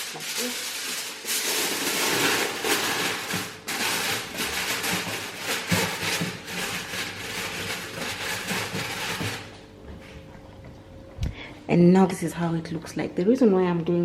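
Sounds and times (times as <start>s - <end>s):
aluminium foil crinkling: 0.0s - 9.5s.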